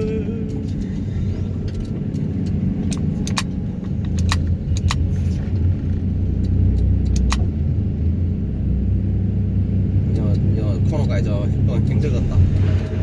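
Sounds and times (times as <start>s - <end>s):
excavator engine rumbling: 0.0s - 13.0s
sharp metallic clicks: 1.7s - 7.5s.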